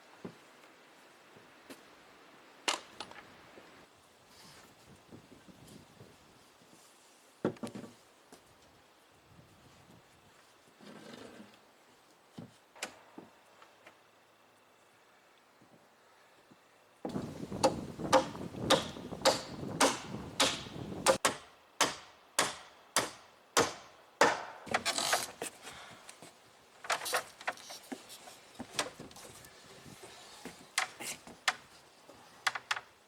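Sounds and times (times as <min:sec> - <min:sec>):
sharp ringing knocks: 0:17.2 - 0:24.5.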